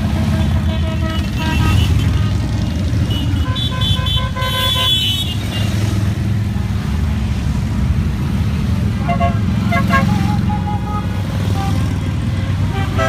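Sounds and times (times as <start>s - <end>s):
motorcycle engines rumbling: 0.0s - 13.0s
horns honking short beeps: 9.0s - 13.0s.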